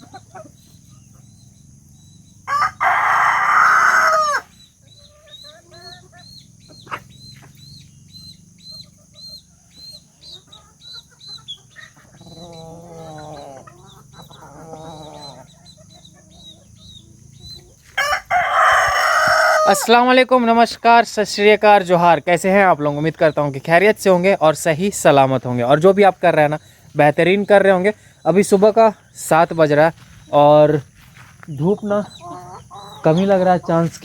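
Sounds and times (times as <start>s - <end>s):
chickens clucking and peeping: 0.0s - 34.0s
rooster crowing: 2.4s - 4.5s, 17.8s - 20.0s.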